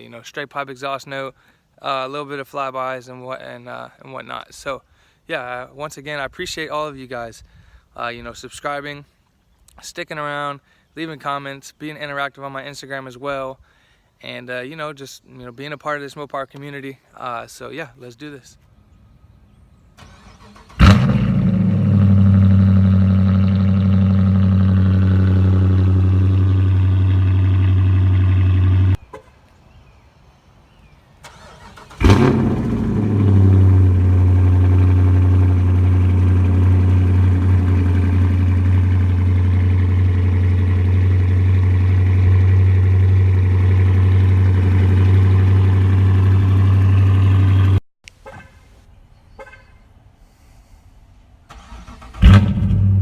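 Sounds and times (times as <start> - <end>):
car engine starting and idling: 20.0 - 29.0, 31.2 - 47.8, 51.5 - 53.0.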